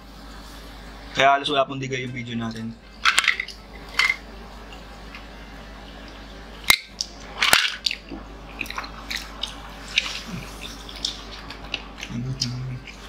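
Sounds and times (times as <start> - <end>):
chewing and lip smacks: 7.8 - 13.0.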